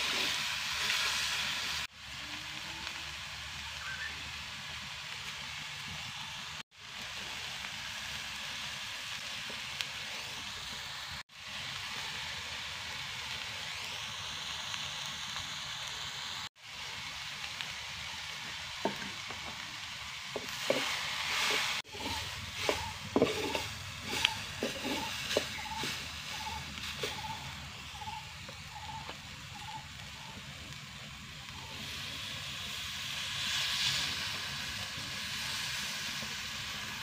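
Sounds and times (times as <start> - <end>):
vegetables sizzling in oil: 0.0 - 37.0
wooden spoon scraping clay pot: 20.3 - 27.5.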